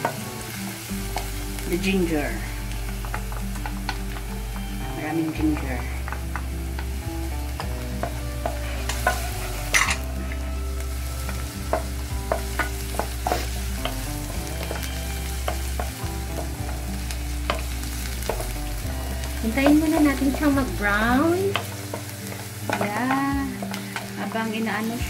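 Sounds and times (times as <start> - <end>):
food sizzling in oil: 0.0 - 25.0
spatula scraping and tapping pan: 7.6 - 10.4, 19.4 - 25.0.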